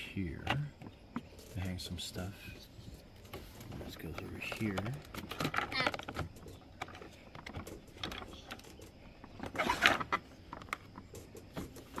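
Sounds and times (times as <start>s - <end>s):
plastic scraping rattle: 0.4s - 12.0s
plastic parts clicking and knocking: 3.2s - 12.0s.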